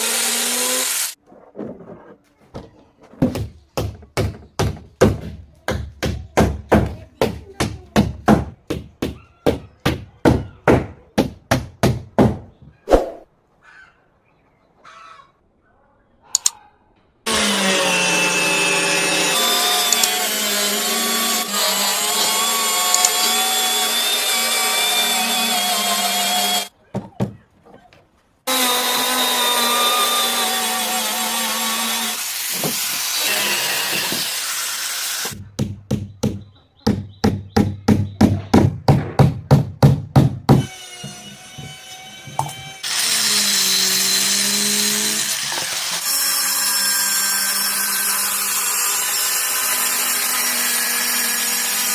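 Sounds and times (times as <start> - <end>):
electric power tool running: 0.0 - 1.2, 17.3 - 26.7.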